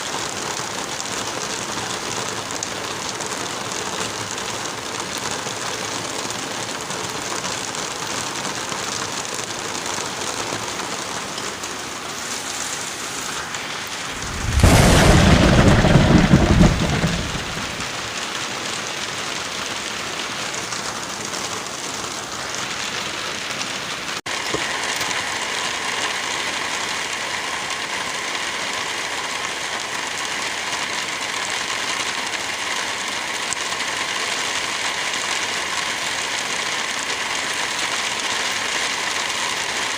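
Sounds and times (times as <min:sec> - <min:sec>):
heavy rain: 0:00.0 - 0:39.9
loud thunderclap: 0:14.1 - 0:18.2.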